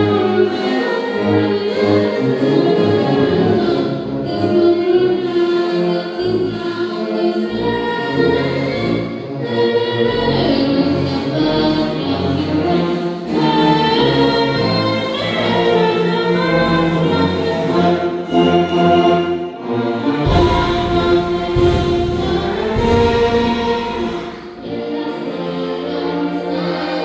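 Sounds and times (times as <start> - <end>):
choir singing: 0.0 - 27.0
orchestral backing: 0.0 - 27.0.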